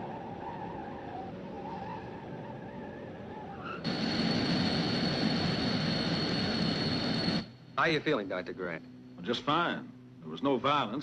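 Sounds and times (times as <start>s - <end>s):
rushing jet engine with whine: 0.0s - 8.1s.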